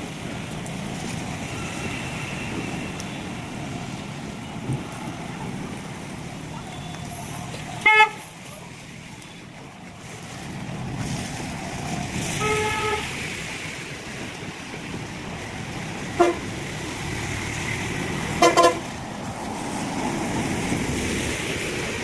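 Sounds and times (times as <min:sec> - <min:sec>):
vehicle horns honking: 0:07.7 - 0:08.3, 0:12.3 - 0:13.2, 0:16.1 - 0:16.5, 0:18.4 - 0:18.9.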